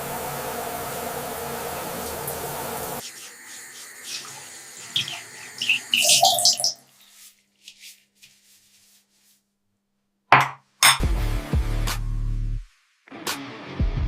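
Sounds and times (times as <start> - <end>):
rubbing and handling noises: 3.0 - 9.8.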